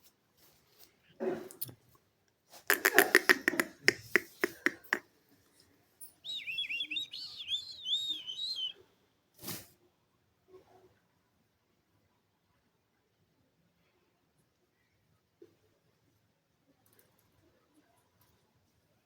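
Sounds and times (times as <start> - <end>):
parrot harsh chattering: 2.7 - 5.0
parrot squawk: 2.7 - 5.0
parrot warbling whistle: 2.7 - 5.0, 6.3 - 8.7.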